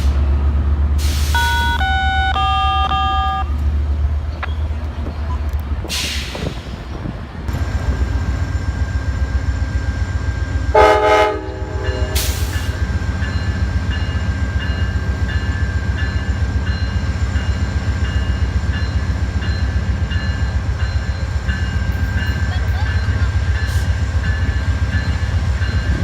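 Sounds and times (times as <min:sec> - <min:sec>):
diesel locomotive rumbling: 0:00.0 - 0:26.0
hiss of air: 0:01.0 - 0:01.4
locomotive horn blast: 0:01.2 - 0:03.6, 0:10.7 - 0:12.7.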